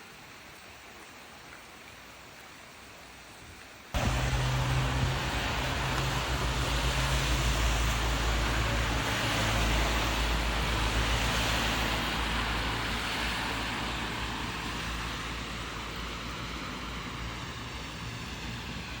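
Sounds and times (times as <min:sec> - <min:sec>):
rain hiss: 0:00.0 - 0:19.0
low rumble: 0:04.0 - 0:10.6.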